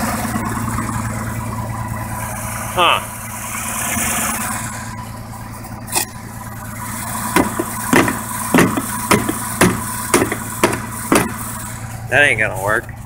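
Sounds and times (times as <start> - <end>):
truck engine idling: 0.0 - 13.0
sharp knocks on metal hinge: 7.4 - 11.5.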